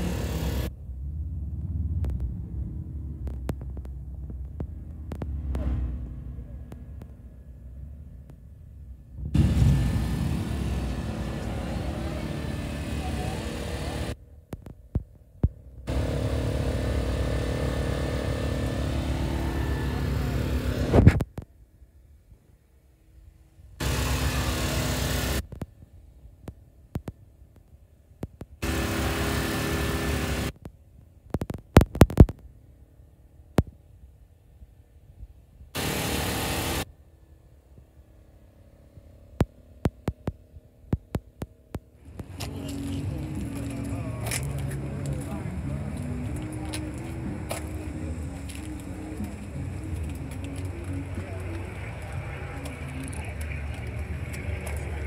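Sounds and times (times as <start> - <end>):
vehicle engine rumbling: 0.0 - 55.0
loud hiss-like noise burst: 23.8 - 25.4, 35.8 - 36.9.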